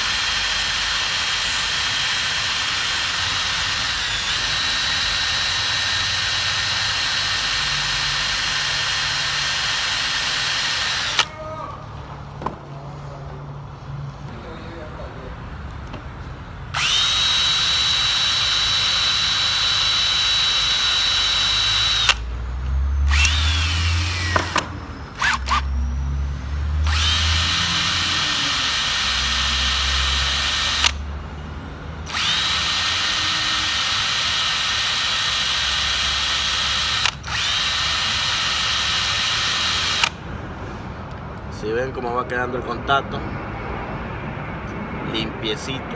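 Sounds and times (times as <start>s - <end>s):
electric drill wire brush whining: 0.0s - 11.3s, 16.8s - 22.3s, 23.1s - 25.8s, 26.8s - 31.0s, 32.1s - 40.2s.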